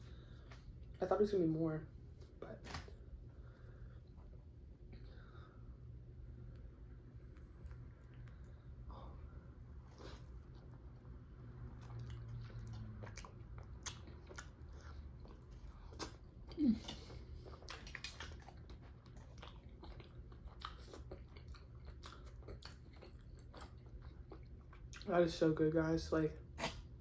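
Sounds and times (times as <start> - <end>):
person chewing: 6.5 - 25.1.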